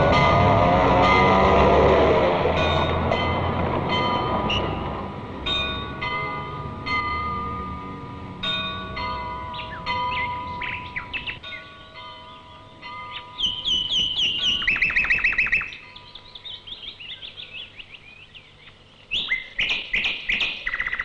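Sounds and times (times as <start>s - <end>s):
bell-like ringing tones: 2.5s - 16.4s
birds chirping: 2.5s - 21.0s.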